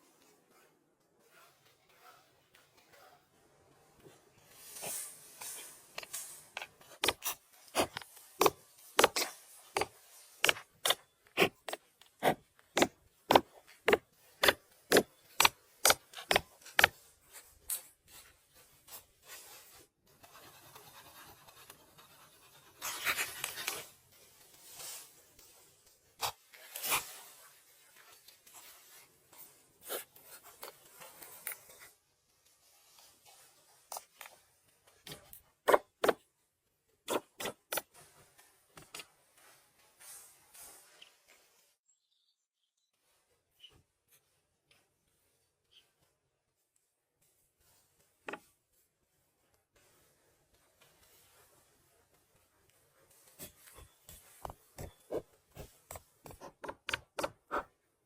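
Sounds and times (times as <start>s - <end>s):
rubbing and scraping wood: 4.4s - 31.9s, 49.8s - 57.9s.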